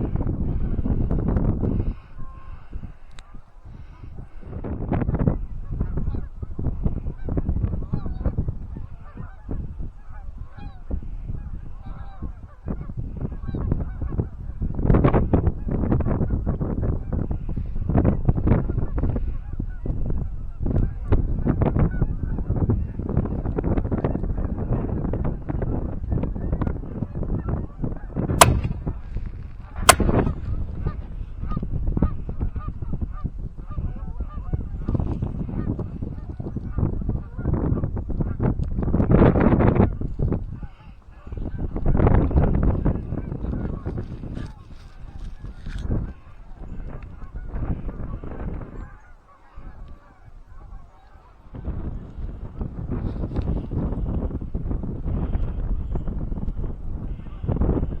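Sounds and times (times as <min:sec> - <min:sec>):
wind rumbling on microphone: 0:00.0 - 0:18.9, 0:51.5 - 0:58.0
wind rumble on microphone: 0:00.0 - 0:30.5, 0:31.2 - 0:58.0
shotgun shots: 0:28.4 - 0:29.0, 0:29.9 - 0:30.3.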